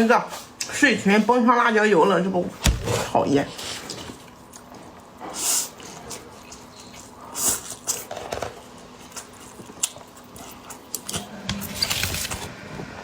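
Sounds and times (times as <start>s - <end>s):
chewing and slurping noodles: 3.8s - 11.4s.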